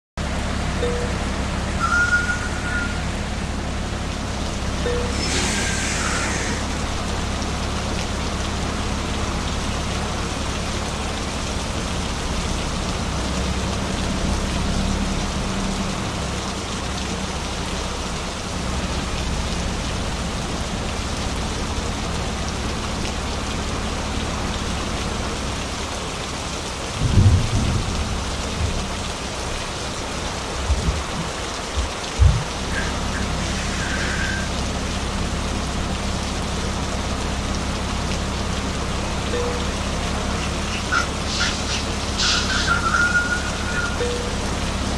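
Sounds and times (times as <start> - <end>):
rain-like hiss: 0.2 - 44.9
truck engine drone: 0.2 - 44.9
heavy low thumps: 26.9 - 29.4, 30.4 - 32.7.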